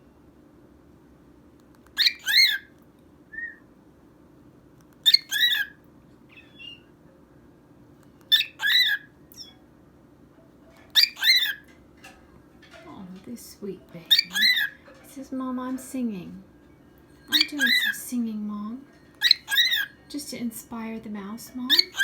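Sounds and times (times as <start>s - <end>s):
soft bird chirps: 1.9s - 2.8s, 5.0s - 7.0s, 8.1s - 9.7s, 10.8s - 11.7s, 14.1s - 14.8s, 17.2s - 18.2s, 19.1s - 20.1s, 21.7s - 22.0s
cockatiel whistling: 2.0s - 2.7s, 5.0s - 6.9s, 8.3s - 9.6s, 10.9s - 11.6s, 14.1s - 14.8s, 17.3s - 18.0s, 19.2s - 20.0s, 21.7s - 22.0s.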